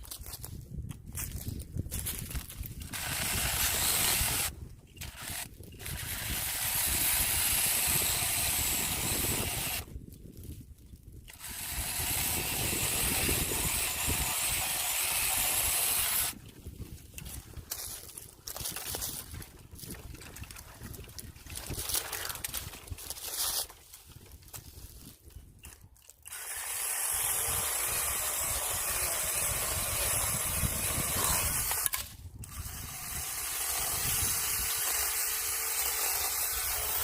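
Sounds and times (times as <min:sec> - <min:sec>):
mini chainsaw cutting branches: 0:02.1 - 0:09.9, 0:11.2 - 0:16.4, 0:17.2 - 0:23.8, 0:25.7 - 0:37.0
rustling and handling noise: 0:16.4 - 0:26.3.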